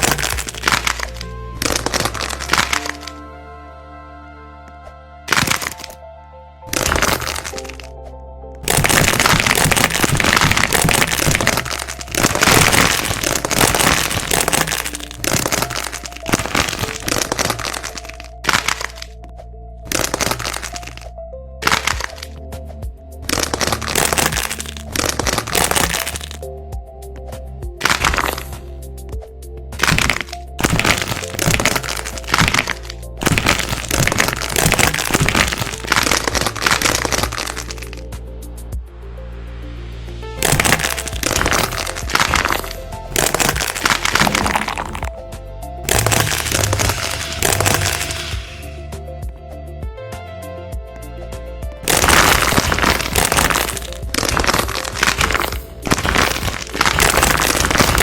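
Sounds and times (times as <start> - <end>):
wax coating crackling: 0.0 - 3.1, 5.3 - 6.0, 6.7 - 7.9, 8.6 - 19.2, 19.9 - 21.0, 21.6 - 22.3, 23.3 - 26.4, 27.8 - 28.7, 29.8 - 38.0, 40.4 - 45.1, 45.9 - 48.8, 51.9 - 58.0.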